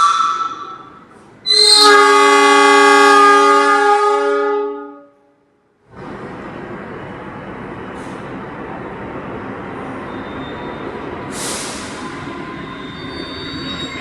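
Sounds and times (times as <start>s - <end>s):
train horn blast: 0.0s - 5.5s.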